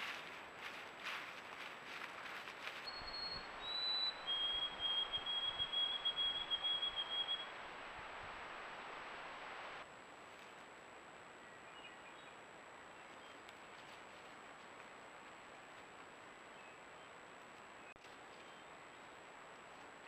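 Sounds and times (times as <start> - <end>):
rustling of bushes: 0.0 - 11.6, 12.7 - 20.0
steady outdoor hiss: 0.0 - 20.0
songbird whistling and trilling: 2.8 - 7.5.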